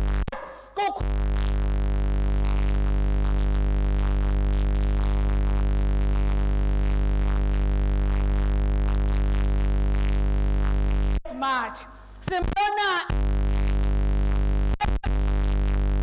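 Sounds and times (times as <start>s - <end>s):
person preaching: 0.3s - 1.2s, 11.3s - 13.1s.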